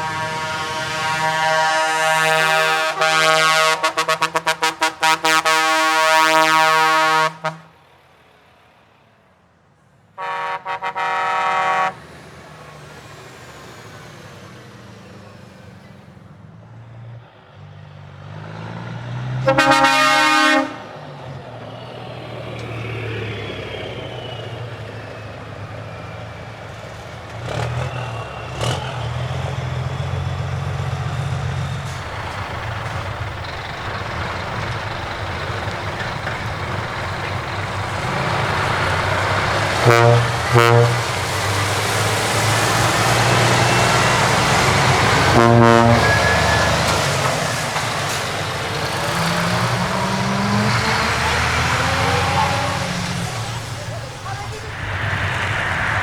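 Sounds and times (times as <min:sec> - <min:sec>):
truck horn blasts: 0:00.0 - 0:07.8, 0:10.2 - 0:12.2, 0:19.4 - 0:21.3, 0:37.9 - 0:42.0, 0:42.7 - 0:54.0
truck engines running: 0:00.0 - 0:56.0.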